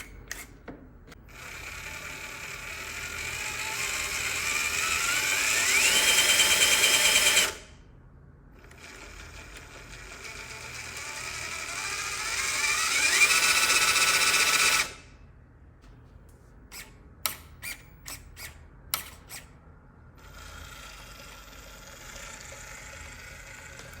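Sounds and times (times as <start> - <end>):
faint steady whir: 0.0 - 24.0
small electric motor whining: 1.3 - 7.6, 10.0 - 15.0.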